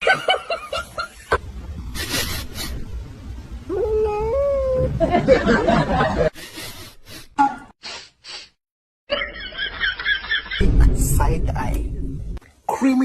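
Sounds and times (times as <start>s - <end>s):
people laughing: 5.0s - 6.8s, 9.1s - 10.6s.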